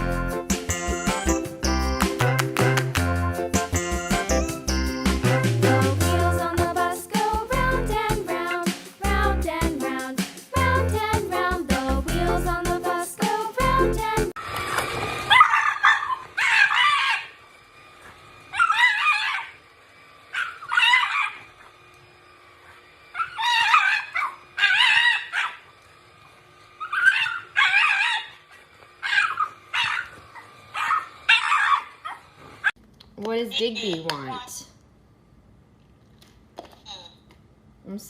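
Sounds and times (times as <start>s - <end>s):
dog making high-pitched calls: 15.3s - 17.4s, 18.5s - 19.6s, 20.4s - 21.6s, 23.2s - 25.7s, 26.8s - 28.4s, 29.0s - 32.3s.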